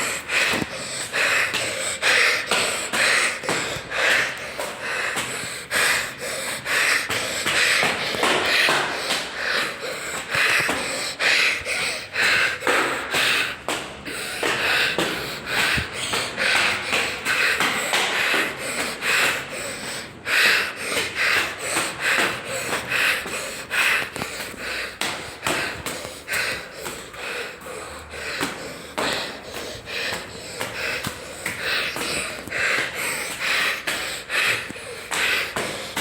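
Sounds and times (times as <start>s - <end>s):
footsteps on stairs: 0.0s - 36.0s
heavy rapid breathing: 0.0s - 36.0s.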